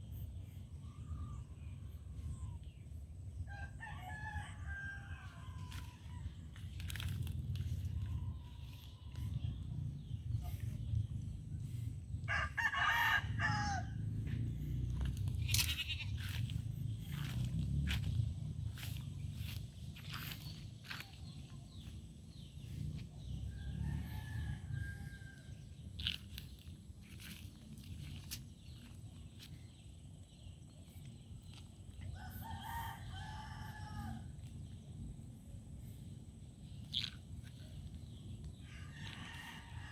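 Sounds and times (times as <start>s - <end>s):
rooster crowing: 3.5s - 6.2s, 12.3s - 14.1s, 23.5s - 25.6s, 32.1s - 34.3s, 38.6s - 39.9s
low rumble: 5.0s - 32.4s
farm animal calling: 14.8s - 16.4s.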